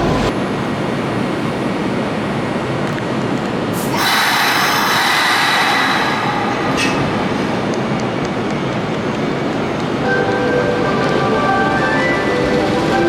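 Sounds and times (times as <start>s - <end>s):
high hiss with squealing tones: 3.8s - 8.0s
electric train running: 3.8s - 13.0s.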